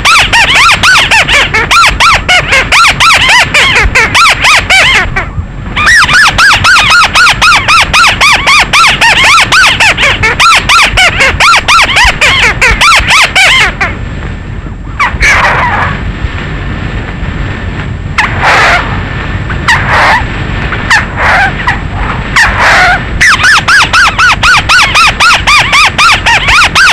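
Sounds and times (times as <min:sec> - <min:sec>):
bird squeaky rapid notes: 0:00.0 - 0:05.1, 0:05.8 - 0:13.7, 0:22.4 - 0:26.9
harsh bird calls: 0:00.0 - 0:14.0, 0:15.0 - 0:16.0, 0:19.7 - 0:20.3, 0:20.9 - 0:26.9.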